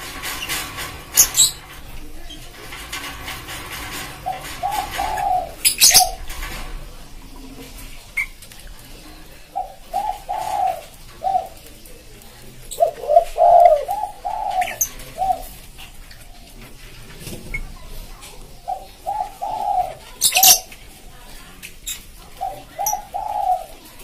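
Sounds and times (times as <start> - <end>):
dove cooing: 3.9 - 6.3, 9.0 - 16.7, 17.4 - 20.8, 21.9 - 24.0.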